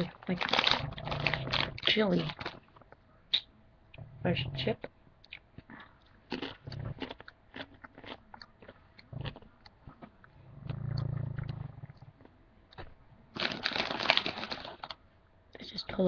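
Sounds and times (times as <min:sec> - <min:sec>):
corn chip crunching: 0:00.0 - 0:02.9, 0:06.1 - 0:10.2, 0:13.3 - 0:15.0.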